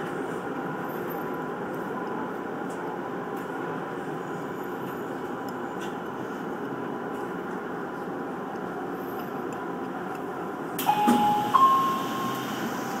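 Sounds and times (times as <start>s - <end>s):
electric train rumbling: 0.0s - 13.0s
two-note tone: 10.8s - 13.0s.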